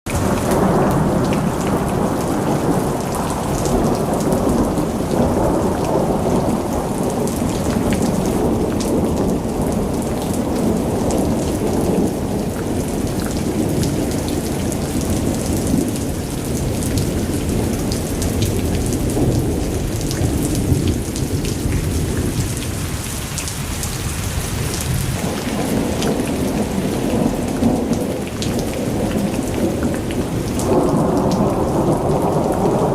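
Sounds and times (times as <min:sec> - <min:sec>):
heavy rain: 0:00.0 - 0:32.9
rolling thunder rumble: 0:00.1 - 0:23.1, 0:23.7 - 0:32.9.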